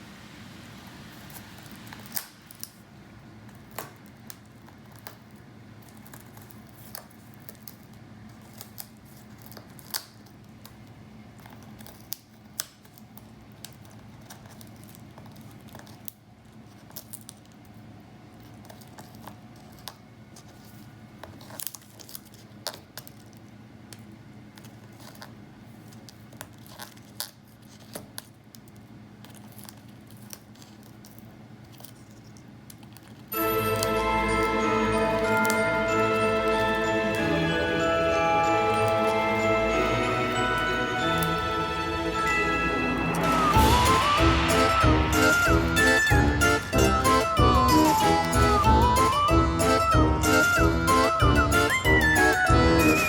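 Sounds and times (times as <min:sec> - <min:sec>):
parrot chewing with beak: 0:18.4 - 0:33.3
steady low hum: 0:31.2 - 0:53.0.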